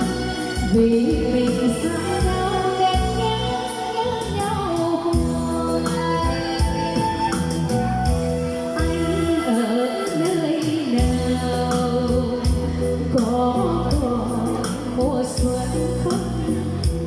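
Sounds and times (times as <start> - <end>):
steady drum beat: 0.0 - 9.2, 10.6 - 17.0.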